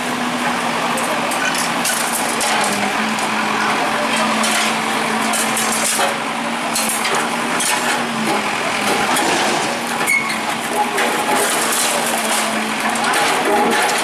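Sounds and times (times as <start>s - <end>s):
bulldozer engine hum: 0.0s - 14.0s
debris breaking and falling: 4.1s - 14.0s.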